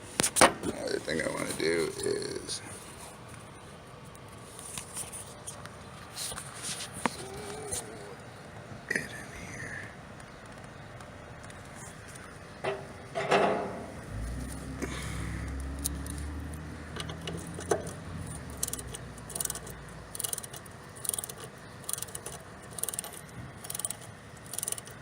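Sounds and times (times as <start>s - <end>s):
low hum: 12.0s - 24.6s
ratcheting hand tool clicking: 15.5s - 25.0s.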